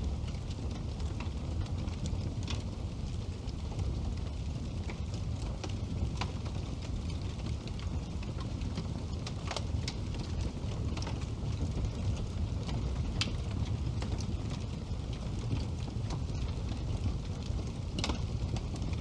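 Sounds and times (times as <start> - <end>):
fireplace crackling: 0.0 - 19.0.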